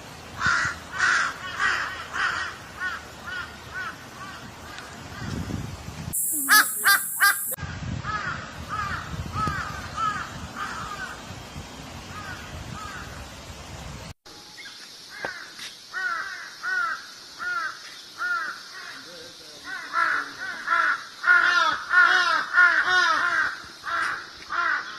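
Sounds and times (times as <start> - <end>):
crows cawing: 0.4 - 5.3, 6.5 - 11.2, 15.1 - 24.9.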